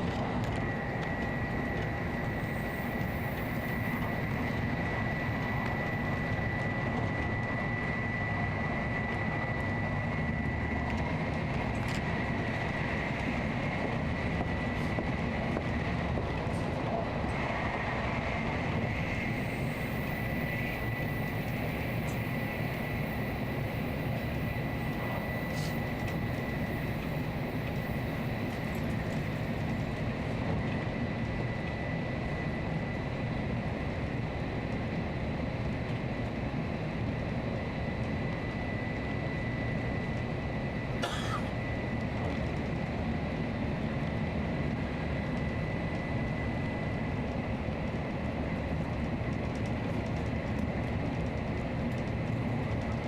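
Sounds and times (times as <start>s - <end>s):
bullet train running: 0.0s - 32.8s.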